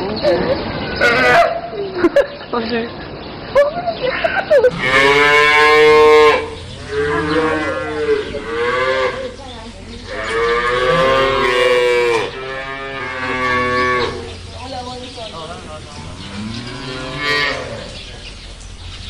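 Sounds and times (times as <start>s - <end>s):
cow mooing: 4.7s - 9.4s, 10.0s - 14.4s, 16.1s - 18.0s.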